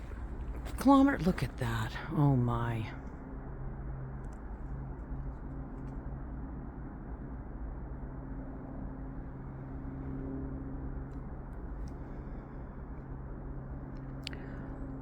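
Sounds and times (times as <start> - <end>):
footsteps on a trail: 0.0 - 1.6
faint even hum: 0.0 - 15.0
steady low rumble: 0.0 - 15.0.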